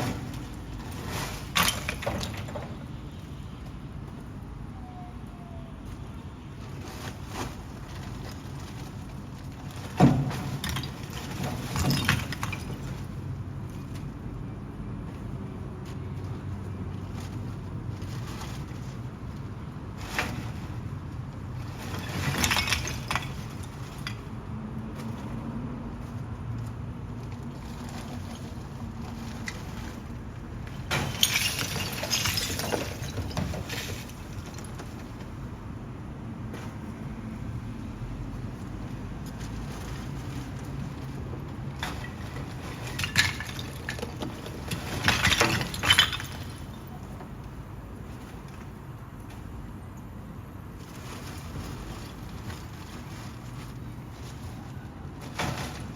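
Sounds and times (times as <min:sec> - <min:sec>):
material clattering against metal: 0:00.0 - 0:02.9, 0:06.7 - 0:13.2, 0:17.0 - 0:25.4, 0:27.3 - 0:35.6, 0:39.3 - 0:47.4, 0:50.8 - 0:55.9
sharp clattering and clinking: 0:41.8 - 0:47.0.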